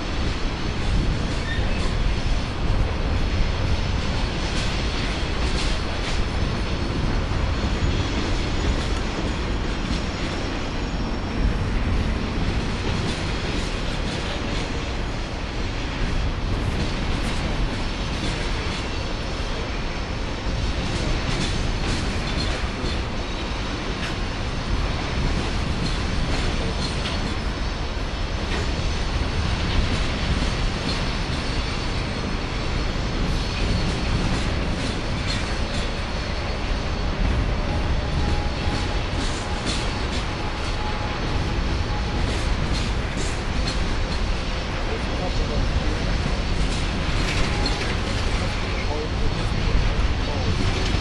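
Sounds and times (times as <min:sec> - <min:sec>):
train cars rumbling past: 0:00.0 - 0:51.0.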